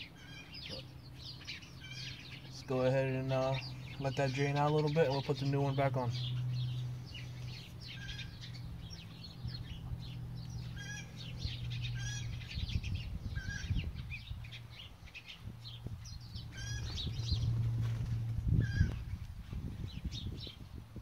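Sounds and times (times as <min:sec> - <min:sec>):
birds chirping: 0:00.0 - 0:21.0
steady low hum: 0:00.0 - 0:21.0.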